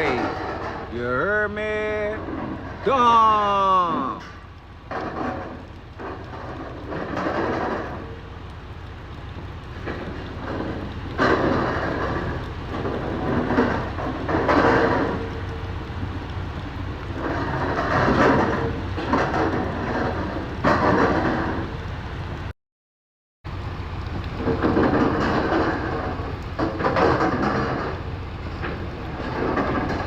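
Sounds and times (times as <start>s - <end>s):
surges of noise: 0.0s - 22.4s
rain falling: 0.0s - 22.5s, 23.5s - 30.0s
steady low rumble: 0.0s - 22.5s, 23.5s - 30.0s.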